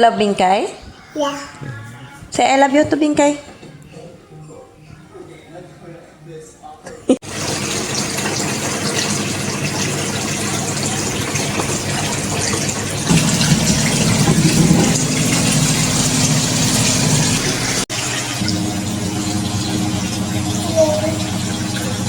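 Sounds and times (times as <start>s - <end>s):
car engine running: 13.1s - 17.8s.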